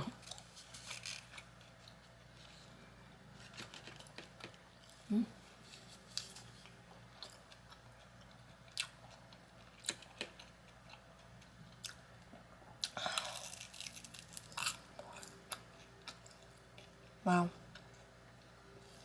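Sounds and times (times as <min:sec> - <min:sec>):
person chewing: 0:12.8 - 0:16.9.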